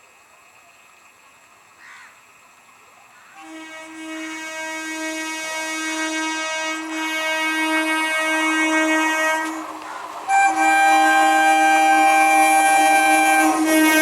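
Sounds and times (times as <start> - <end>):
train horn: 3.4 - 14.0.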